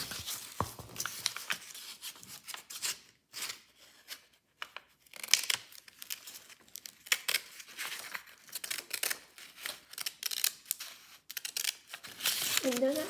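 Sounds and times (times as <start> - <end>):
paper rustling and crinkling: 0.0 - 9.9, 11.7 - 13.0.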